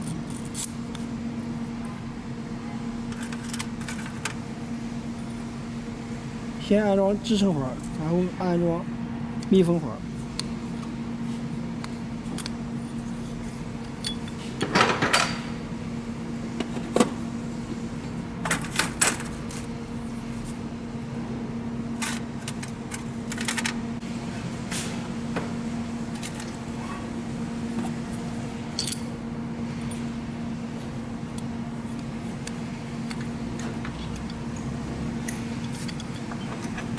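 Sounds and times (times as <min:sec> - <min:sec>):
steady low hum: 0:00.0 - 0:36.9
metal tool clicking and clinking: 0:28.8 - 0:29.1.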